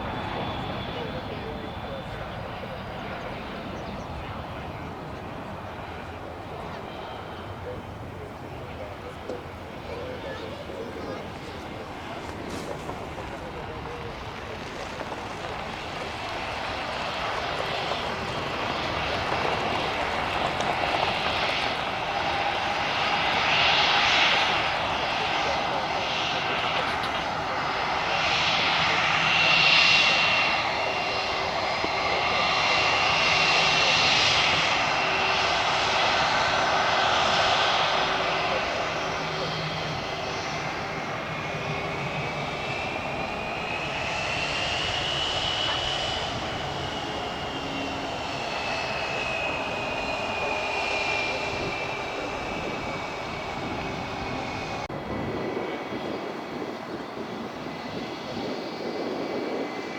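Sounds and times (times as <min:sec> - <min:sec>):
high engine whine: 0:00.0 - 0:59.9
jet engines roaring: 0:00.0 - 0:59.9.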